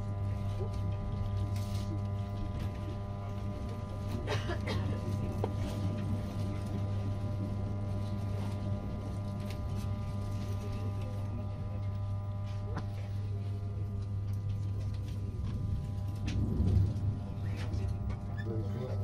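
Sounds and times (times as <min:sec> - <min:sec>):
train rumbling inside carriage: 0:15.0 - 0:18.7.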